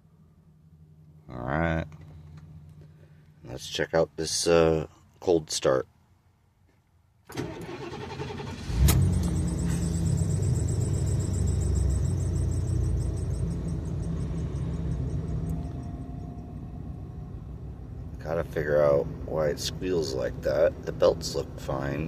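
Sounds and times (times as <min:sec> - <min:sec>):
starter motor cranking: 0:07.3 - 0:09.0
high pulsing squeal: 0:08.6 - 0:18.1.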